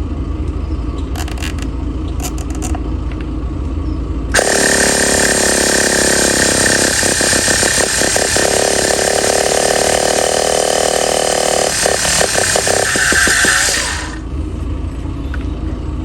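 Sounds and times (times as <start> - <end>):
model engine running at high revs: 4.4 - 14.3.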